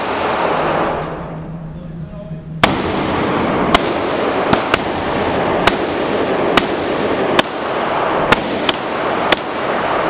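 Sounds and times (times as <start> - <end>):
steady background noise: 0.0 - 10.0
handgun shots: 3.7 - 5.0, 5.6 - 7.6, 8.3 - 9.6.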